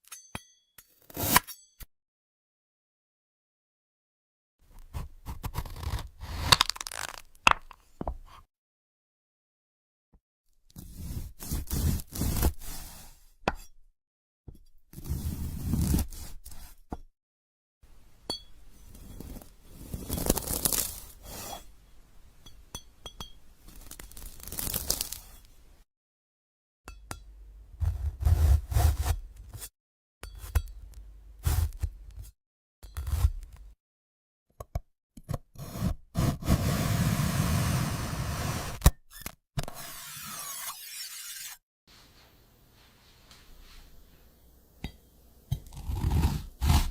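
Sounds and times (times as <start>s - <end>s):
crunchy fruit being sliced: 45.6s - 46.9s.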